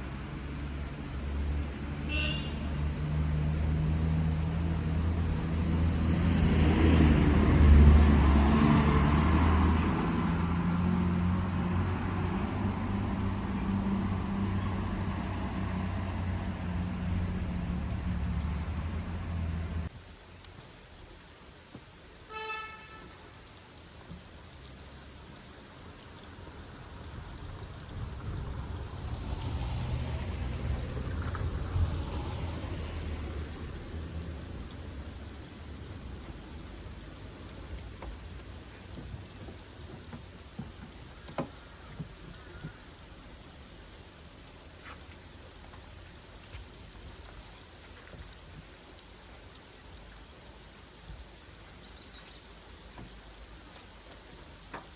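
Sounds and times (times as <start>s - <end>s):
steady high hiss: 0.0s - 6.1s, 11.2s - 54.9s
vehicle passing: 0.0s - 19.9s, 26.4s - 40.7s
insects chirping: 0.0s - 54.9s
horn toot: 2.1s - 2.7s, 22.3s - 23.2s.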